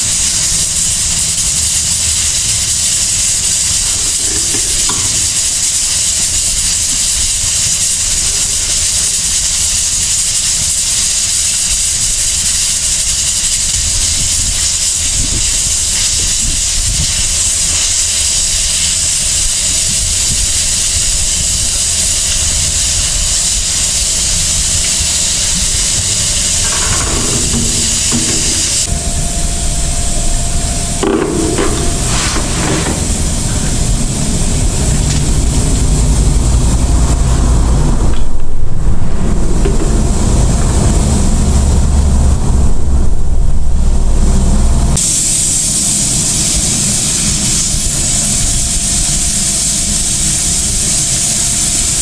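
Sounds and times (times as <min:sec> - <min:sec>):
strong wind on microphone: 0:13.7 - 0:17.8, 0:22.7 - 0:45.0.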